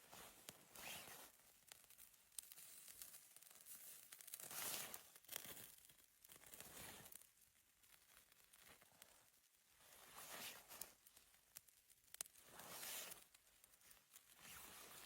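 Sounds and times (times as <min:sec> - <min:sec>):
faint rustling and scraping: 0:00.0 - 0:07.2, 0:07.8 - 0:11.3, 0:12.2 - 0:15.0.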